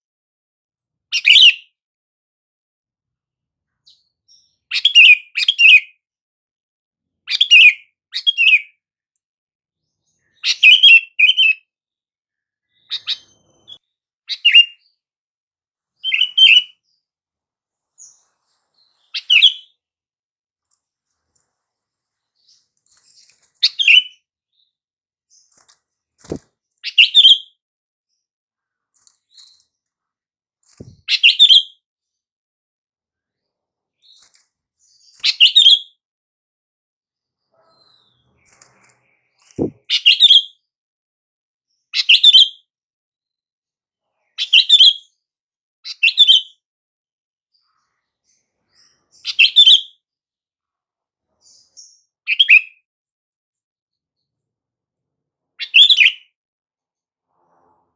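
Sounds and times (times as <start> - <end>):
bird chirping: 3.7 - 6.0, 9.8 - 11.7, 12.3 - 15.0, 16.0 - 17.1, 17.7 - 19.8, 20.6 - 28.2, 30.7 - 31.8, 34.0 - 36.0, 37.4 - 40.7, 44.3 - 45.2, 45.8 - 46.6, 47.6 - 50.0, 51.3 - 52.8, 55.6 - 56.3.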